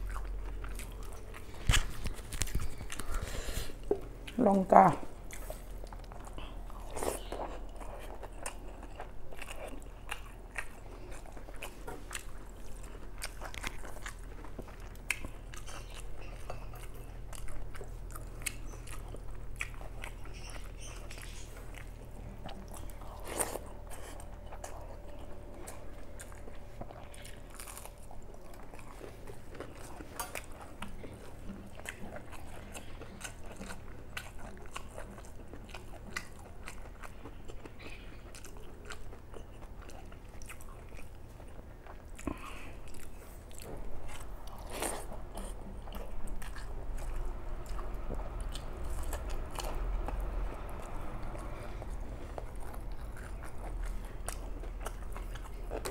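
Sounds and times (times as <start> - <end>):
person chewing food: 0.0 - 55.9
low hum: 40.6 - 55.9.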